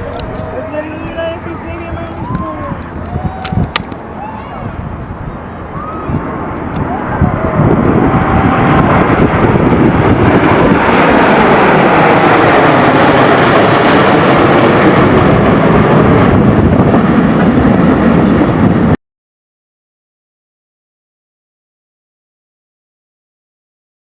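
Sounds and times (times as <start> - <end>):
jet passing close: 0.0 - 19.0
wind buffeting microphone: 0.0 - 19.0.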